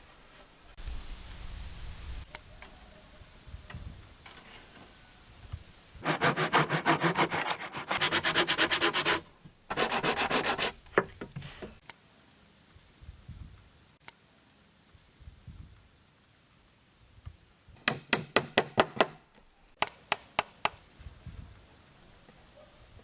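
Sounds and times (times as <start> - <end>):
hand sanding wood: 6.0 - 11.8.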